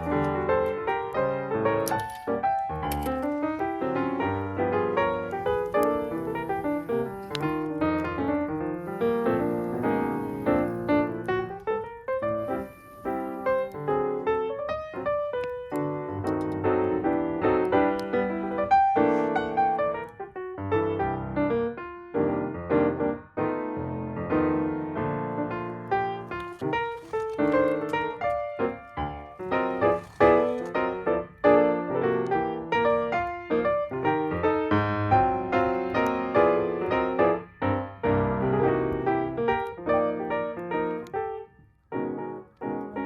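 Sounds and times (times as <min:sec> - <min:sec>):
piano music: 0:00.0 - 0:43.0.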